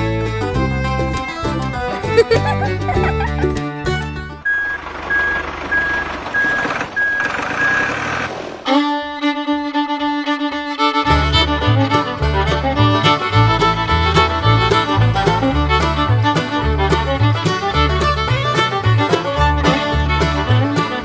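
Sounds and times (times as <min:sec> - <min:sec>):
upbeat fiddle music with bass: 0:00.0 - 0:04.5, 0:08.6 - 0:21.0
repeating single-tone beep: 0:04.4 - 0:07.9.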